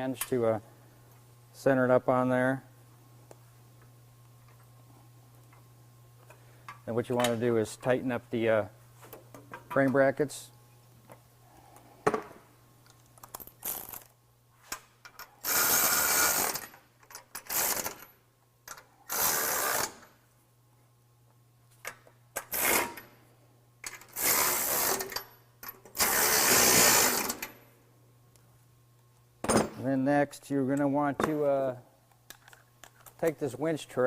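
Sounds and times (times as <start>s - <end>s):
power tool bursts: 26.0s - 27.4s.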